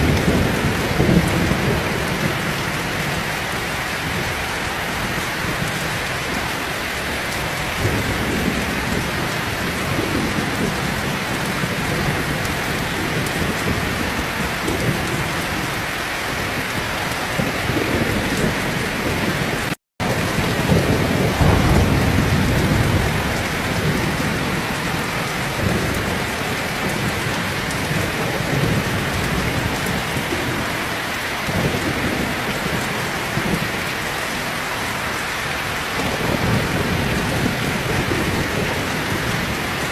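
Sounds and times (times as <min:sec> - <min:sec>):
heavy rain falling: 0:00.0 - 0:39.9
thunder rumbling: 0:00.0 - 0:39.9.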